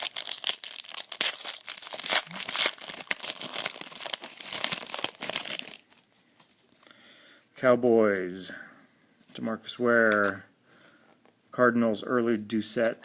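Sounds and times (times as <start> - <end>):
wrapper crinkling and tearing: 0.0 - 6.1.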